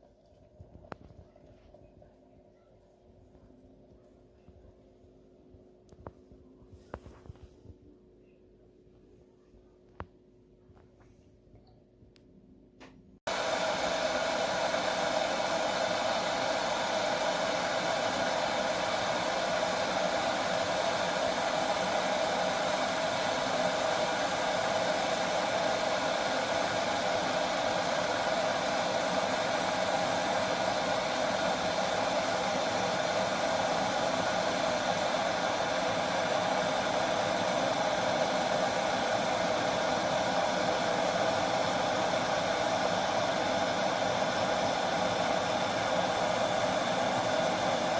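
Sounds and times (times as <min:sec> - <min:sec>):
electric kettle heating water: 0:00.0 - 0:04.8, 0:12.8 - 0:47.9.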